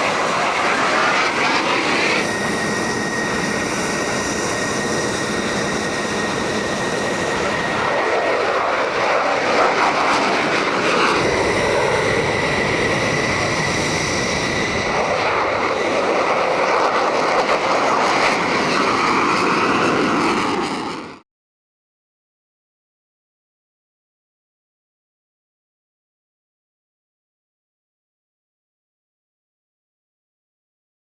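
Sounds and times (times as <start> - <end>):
high-pitched engine whine: 0.0 - 21.2
jet engine running: 0.0 - 21.2.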